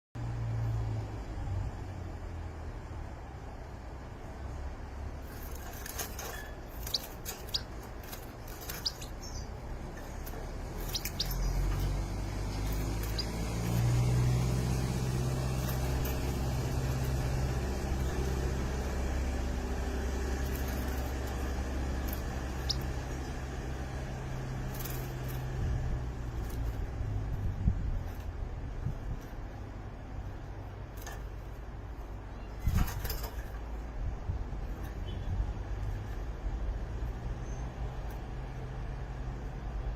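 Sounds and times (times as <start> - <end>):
birds chirping: 5.2 - 28.2, 34.7 - 36.2.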